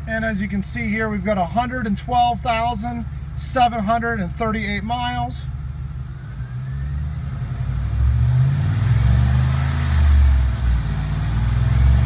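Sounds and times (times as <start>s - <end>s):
car engine revving: 5.5s - 12.0s.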